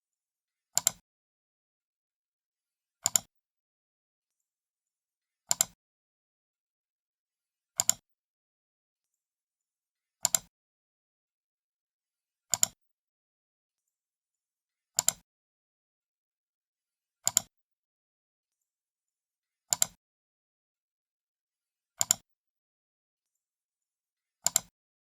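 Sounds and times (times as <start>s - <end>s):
computer mouse clicking: 0.8s - 1.0s, 3.0s - 3.3s, 5.5s - 5.8s, 7.8s - 8.0s, 10.2s - 10.5s, 12.5s - 12.8s, 15.0s - 15.2s, 17.2s - 17.5s, 19.7s - 20.0s, 22.0s - 22.2s, 24.4s - 24.7s.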